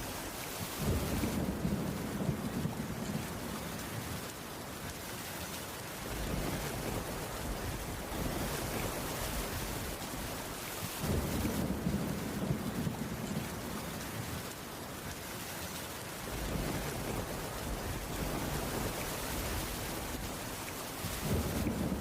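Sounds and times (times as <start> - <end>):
heavy rain: 0.0 - 22.0
thunder rumbling: 0.7 - 4.2, 6.0 - 10.4, 11.0 - 14.5, 16.3 - 22.0.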